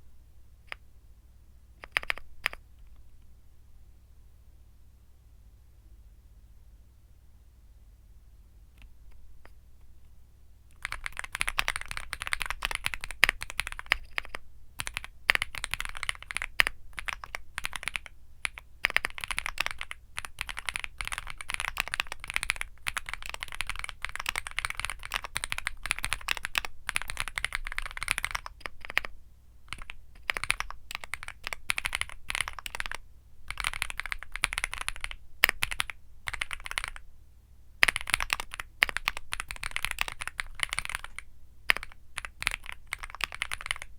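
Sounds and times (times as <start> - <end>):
mechanical keyboard typing: 1.8 - 2.6, 10.7 - 29.1, 29.7 - 37.0, 37.8 - 43.9.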